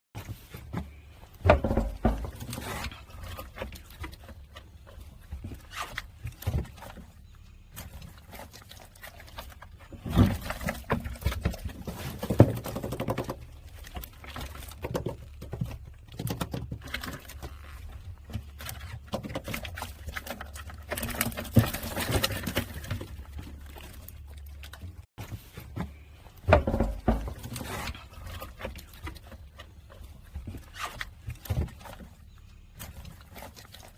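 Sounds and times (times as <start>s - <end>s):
fish flapping and slapping: 7.8s - 32.2s, 32.8s - 33.9s.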